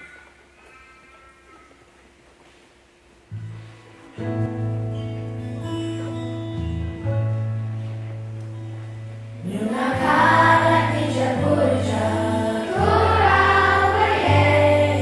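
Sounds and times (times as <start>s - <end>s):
sustained low accompaniment: 3.4s - 15.0s
children's choir singing: 9.4s - 15.0s.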